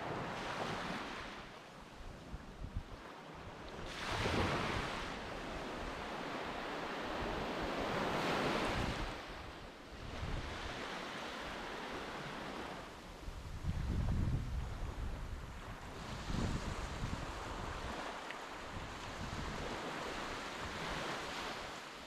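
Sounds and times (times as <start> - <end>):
waves washing onto beach: 0.0 - 22.0
wind rumbling on microphone: 1.9 - 11.0, 11.8 - 21.6.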